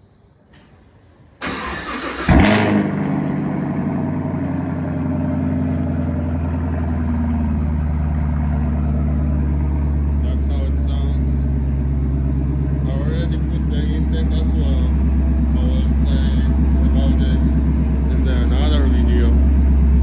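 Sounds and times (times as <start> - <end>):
starter motor cranking: 1.4 - 2.6
car engine revving and idling: 1.4 - 20.0.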